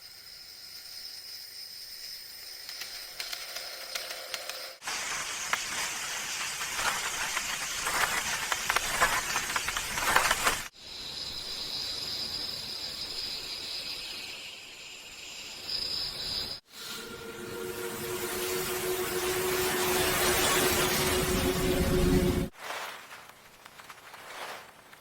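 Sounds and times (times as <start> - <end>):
loud crackling hiss: 4.4 - 14.3
steady high-pitched hum: 16.7 - 22.5.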